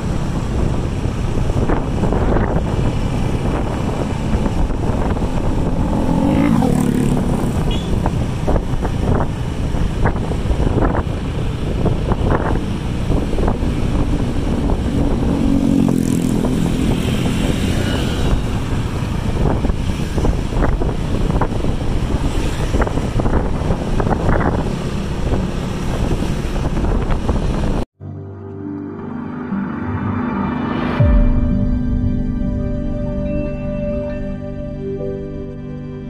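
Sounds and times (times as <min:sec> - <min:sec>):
wind buffeting microphone: 0:00.0 - 0:27.9
dense low rumble: 0:29.8 - 0:35.7.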